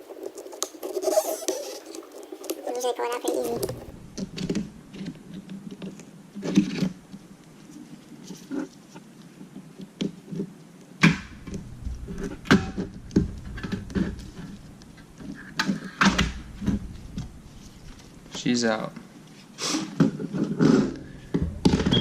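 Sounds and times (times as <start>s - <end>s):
hand tools clicking and scraping: 0.0s - 3.9s.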